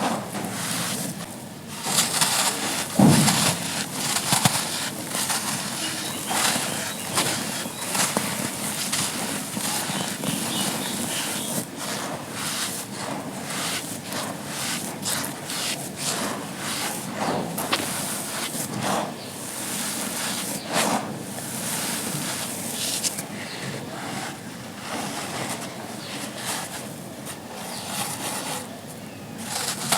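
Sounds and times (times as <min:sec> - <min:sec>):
charcoal crushing and crackling: 0:01.0 - 0:12.0, 0:29.4 - 0:29.9.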